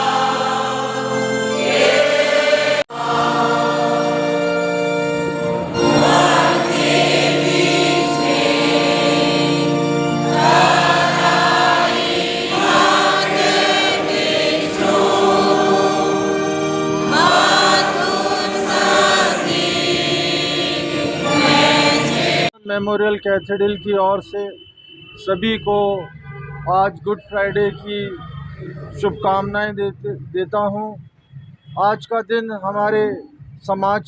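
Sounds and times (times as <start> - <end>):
choir singing a hymn: 0.0 - 22.5
held accompaniment notes: 0.0 - 22.5.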